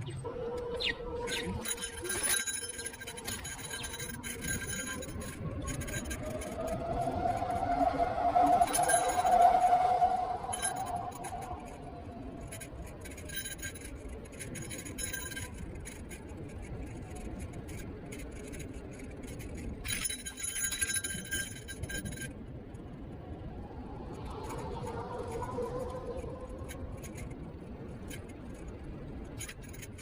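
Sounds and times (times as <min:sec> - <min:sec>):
electric scooter motor whine: 0:00.0 - 0:13.6, 0:23.3 - 0:27.6
rolling noise: 0:00.0 - 0:30.0
rapid high rattling and clinking: 0:01.3 - 0:07.7, 0:08.5 - 0:09.6, 0:10.4 - 0:22.4, 0:24.3 - 0:30.0.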